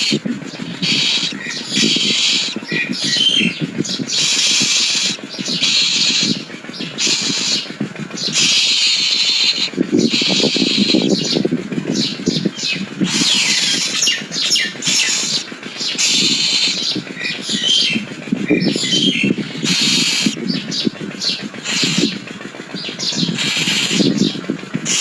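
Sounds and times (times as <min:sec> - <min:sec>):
myna squawks and whistles: 0:00.8 - 0:03.5.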